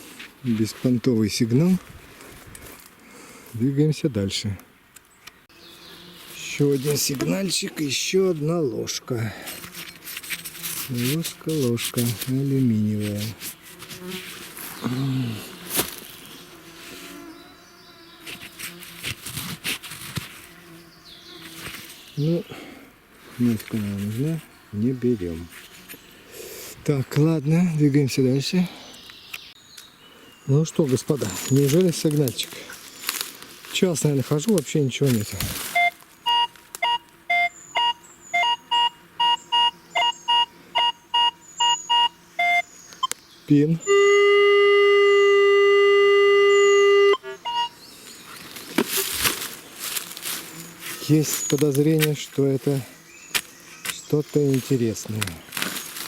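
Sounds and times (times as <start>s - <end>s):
scraping and rustling in soil: 0.0s - 3.8s, 5.6s - 28.4s, 30.5s - 36.9s, 48.0s - 56.0s
fly buzzing: 5.4s - 26.8s, 35.2s - 56.0s
metal detector beeps: 35.7s - 43.2s, 43.8s - 47.8s.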